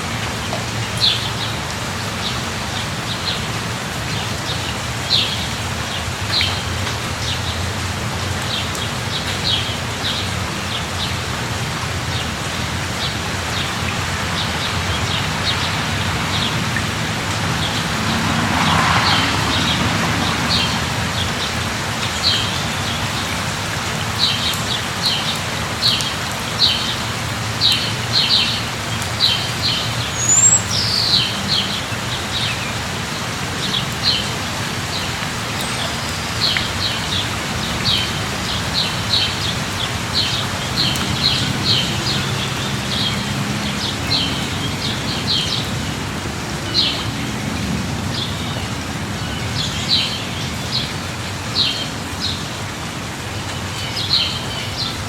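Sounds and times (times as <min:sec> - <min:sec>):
light rain falling: 0:00.0 - 0:55.0
bird chirping: 0:30.1 - 0:31.4.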